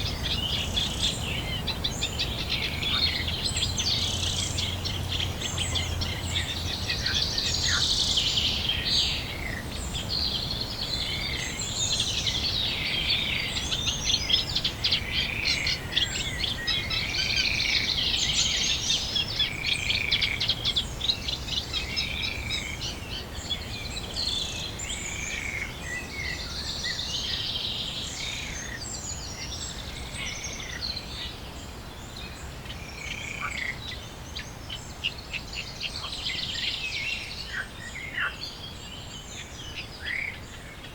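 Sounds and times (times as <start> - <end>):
songbirds chorus: 0.0 - 40.9.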